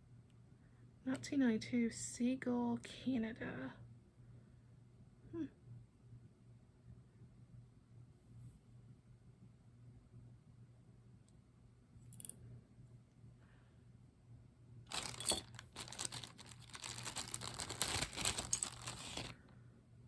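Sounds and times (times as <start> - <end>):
plastic bag crinkling: 14.9 - 19.4.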